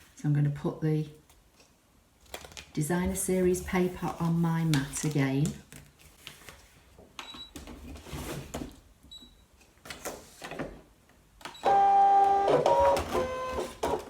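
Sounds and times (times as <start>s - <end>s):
paper rustling: 2.2s - 6.9s
cutting machine motor whine: 11.6s - 14.0s.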